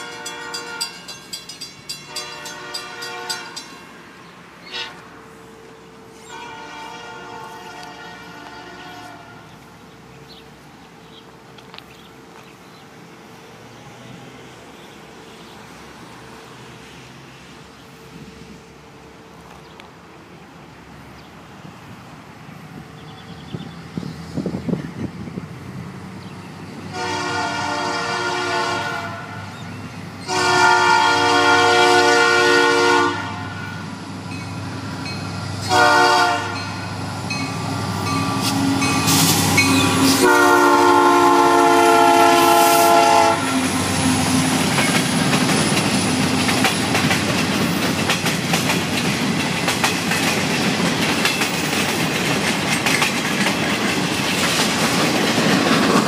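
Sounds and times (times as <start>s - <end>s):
locomotive air horn: 0.0s - 1.0s, 2.1s - 3.6s, 4.7s - 5.2s, 6.2s - 9.5s, 26.9s - 29.4s, 30.3s - 33.8s, 35.7s - 36.7s, 38.2s - 44.2s
train wheels on rails: 0.0s - 56.0s.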